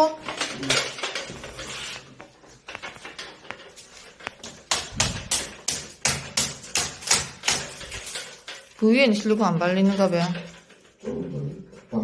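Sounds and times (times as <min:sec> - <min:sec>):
sharp knocks on hard surface: 0:04.4 - 0:07.8.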